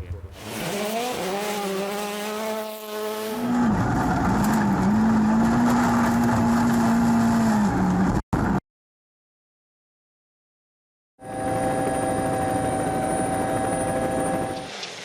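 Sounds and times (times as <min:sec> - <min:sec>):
rally car engine at full throttle: 0:00.0 - 0:08.6.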